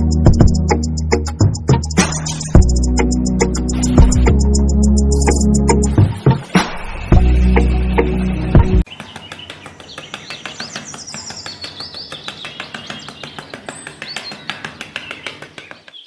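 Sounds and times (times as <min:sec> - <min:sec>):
music: 0:00.0 - 0:08.8
birds chirping: 0:02.2 - 0:16.0.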